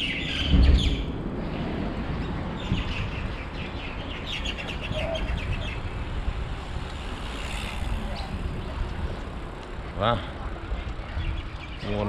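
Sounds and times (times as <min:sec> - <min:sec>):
bird chirping: 0:00.0 - 0:01.2
steady low rumble: 0:00.0 - 0:11.8.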